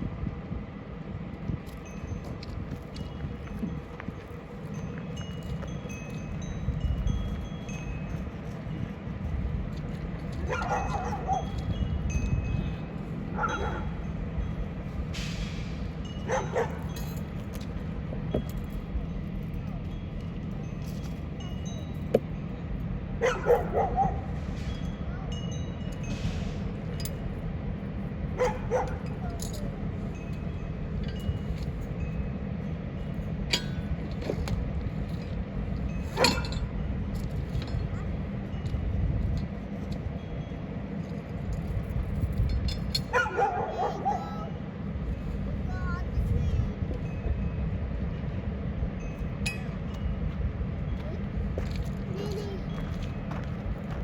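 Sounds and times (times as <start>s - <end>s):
steady low rumble: 0.0s - 54.0s
dog barking: 10.4s - 11.6s, 13.3s - 14.0s, 16.3s - 16.8s, 23.2s - 24.3s, 28.4s - 29.0s, 36.2s - 36.5s, 43.1s - 44.6s.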